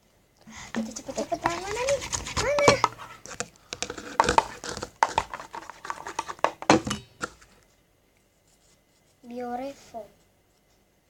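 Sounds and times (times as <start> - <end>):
plastic bottles crinkling and clicking: 0.7 - 7.5.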